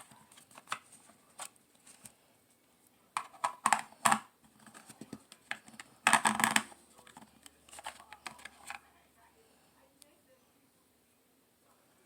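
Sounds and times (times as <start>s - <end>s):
plastic clicking and rattling: 3.2s - 8.8s.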